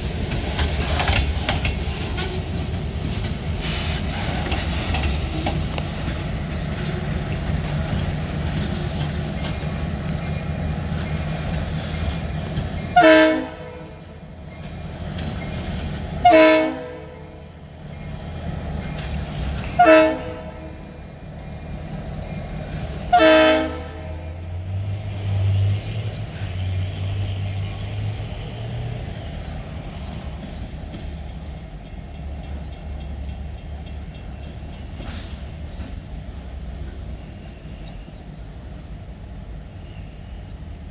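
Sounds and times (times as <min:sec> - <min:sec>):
diesel locomotive rumbling: 0:00.0 - 0:40.9
multi-tone air horn blasts: 0:13.0 - 0:14.0, 0:16.2 - 0:17.3, 0:19.6 - 0:20.7, 0:23.1 - 0:24.3.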